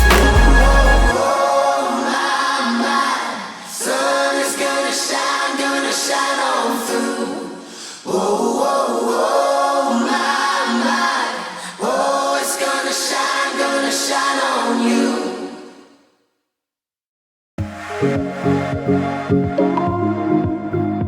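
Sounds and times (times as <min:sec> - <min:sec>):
voices singing harmonies: 0:00.0 - 0:16.0.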